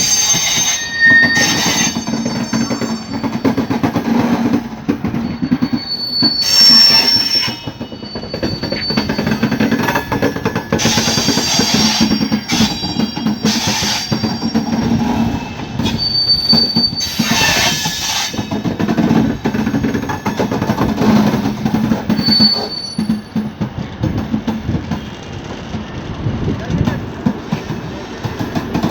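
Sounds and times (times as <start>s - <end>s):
high-pitched wheel squeals: 0.0s - 3.8s, 5.1s - 18.6s, 22.1s - 23.4s
train wheels rumbling and clattering: 0.0s - 28.9s.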